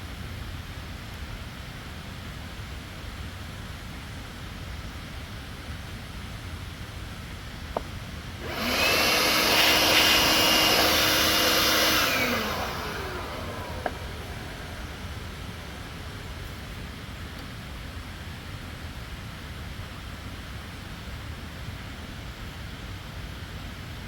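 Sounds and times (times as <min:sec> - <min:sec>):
electric tool motor whining: 0:08.4 - 0:16.9.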